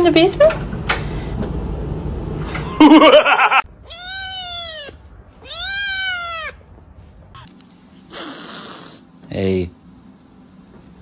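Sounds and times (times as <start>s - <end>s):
cat meowing: 3.7s - 7.5s.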